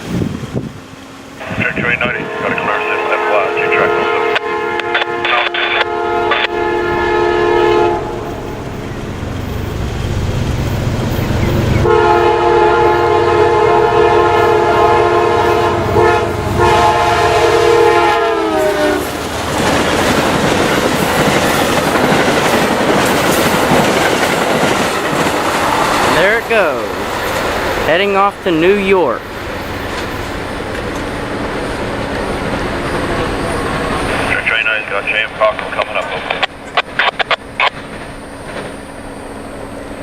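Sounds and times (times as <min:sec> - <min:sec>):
passenger cars rolling by: 0:00.0 - 0:40.0
locomotive air horn: 0:01.4 - 0:08.6, 0:11.8 - 0:19.2.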